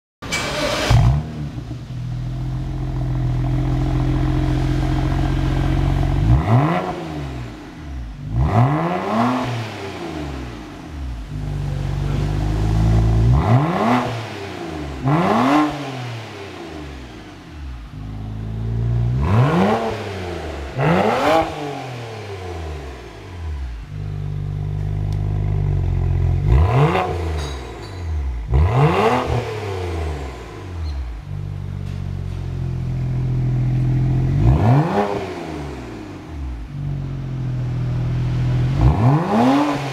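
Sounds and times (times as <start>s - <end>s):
car exhaust revving: 0.7s - 39.9s.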